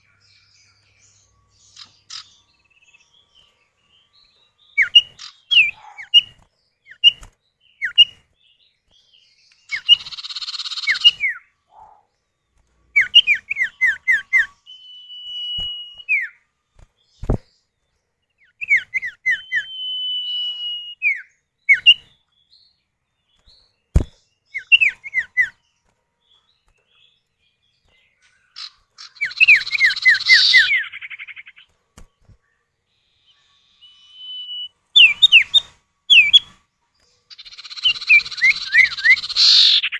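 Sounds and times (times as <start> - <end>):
harsh buzzing bird chatters: 1.6 - 3.5, 4.8 - 7.2, 9.7 - 12.1, 28.2 - 31.7, 37.3 - 39.9
long drawn-out bird whistles: 13.0 - 16.4, 18.6 - 22.0, 33.0 - 36.5, 37.3 - 39.9.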